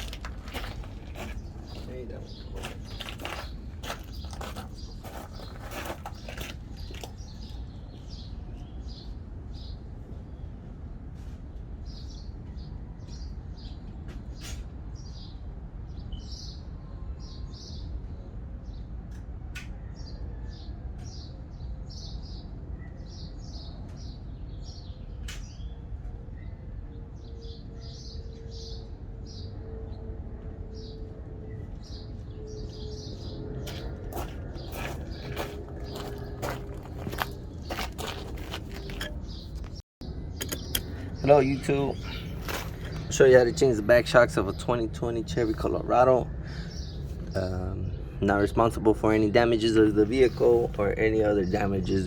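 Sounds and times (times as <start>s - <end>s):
small birds chirping: 0.0s - 10.6s, 31.7s - 52.0s
sharp clicks: 40.4s - 41.1s.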